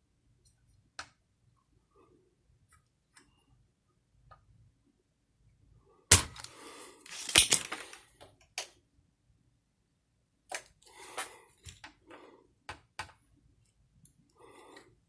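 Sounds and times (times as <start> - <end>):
rattling and scraping parts: 6.1 - 8.0.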